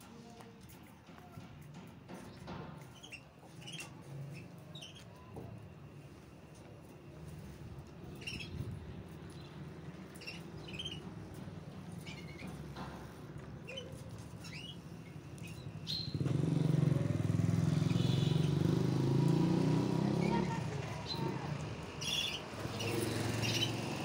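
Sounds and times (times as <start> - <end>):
small birds chirping: 2.1 - 5.6, 7.4 - 24.0
passing vehicle engine: 15.7 - 24.0.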